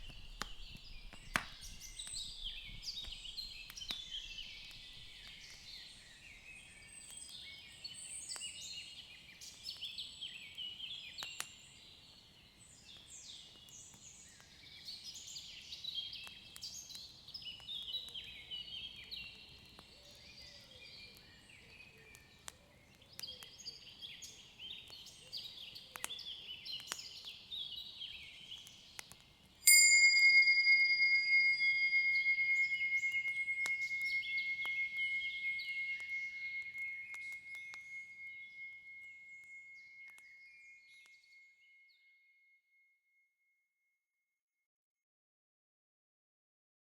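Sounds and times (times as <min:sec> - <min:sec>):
high ringing tone: 0:29.7 - 0:40.0
birds chirping and singing: 0:31.2 - 0:38.5.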